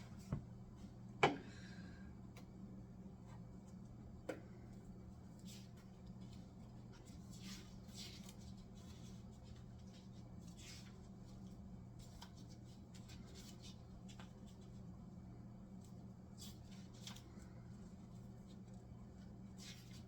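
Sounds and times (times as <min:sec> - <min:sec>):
low steady hum: 0:00.0 - 0:20.0
faint rustling and scratching: 0:04.8 - 0:15.1.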